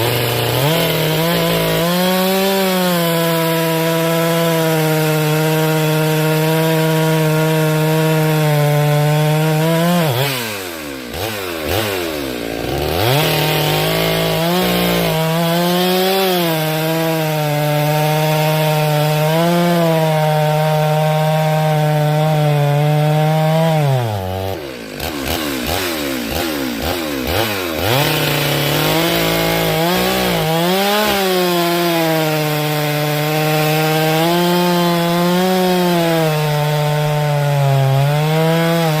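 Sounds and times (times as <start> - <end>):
chainsaw cutting firewood: 0.0 - 39.0.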